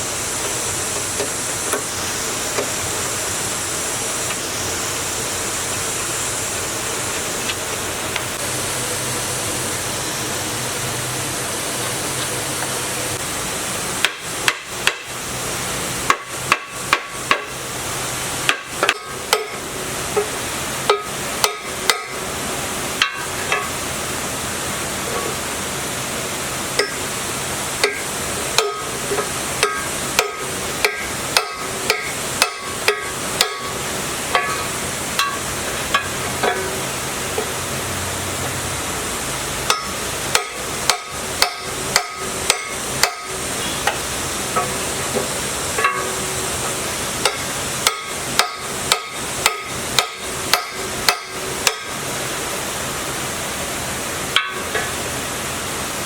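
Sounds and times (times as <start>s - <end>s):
steady hiss: 0.0s - 56.0s
sharp metallic knocks: 16.1s - 17.6s, 18.5s - 19.6s, 20.2s - 22.2s, 23.0s - 23.7s, 27.8s - 36.8s, 39.7s - 44.0s, 44.6s - 52.0s, 54.3s - 55.0s.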